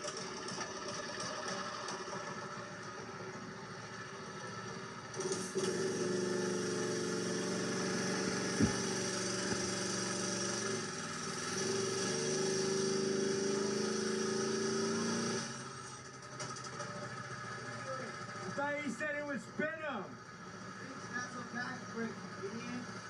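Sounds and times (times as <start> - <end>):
small engine revving: 4.5 - 18.6.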